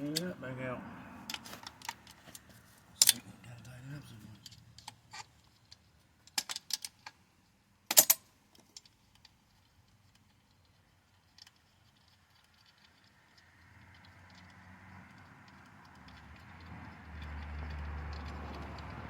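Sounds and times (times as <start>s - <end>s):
metal tools clicking and clinking: 1.2s - 3.3s, 7.9s - 9.3s.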